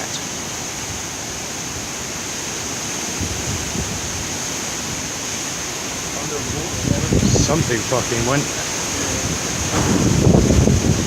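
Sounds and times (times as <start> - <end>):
strong wind rushing: 6.0 - 11.0.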